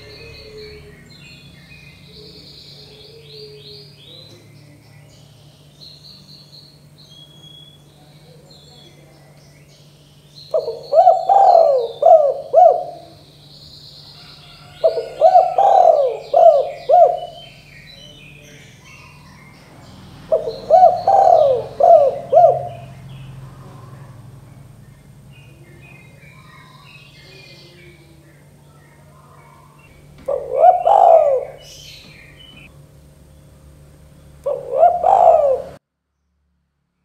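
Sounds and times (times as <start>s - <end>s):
dove cooing: 0.0s - 4.8s, 10.5s - 13.4s, 14.1s - 32.7s, 34.4s - 35.8s
small birds chirping: 0.0s - 36.3s
steady low hum: 0.0s - 37.0s.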